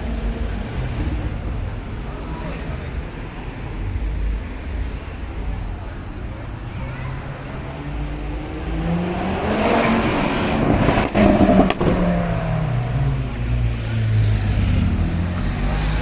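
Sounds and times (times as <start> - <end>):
car engine accelerating past: 8.1 - 16.0.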